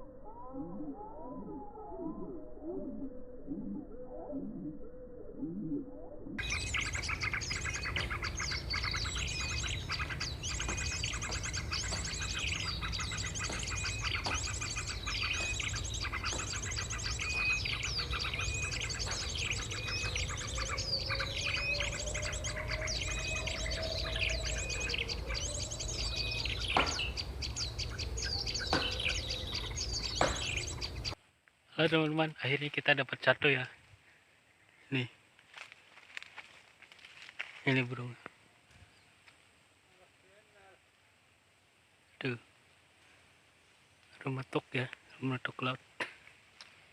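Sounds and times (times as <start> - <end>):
bird trilling song: 0.0 - 31.2.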